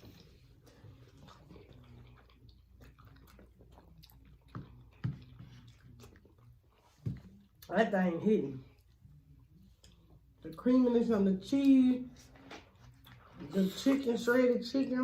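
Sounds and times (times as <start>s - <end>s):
person chewing: 0.0s - 7.8s, 8.7s - 10.6s, 12.6s - 14.4s.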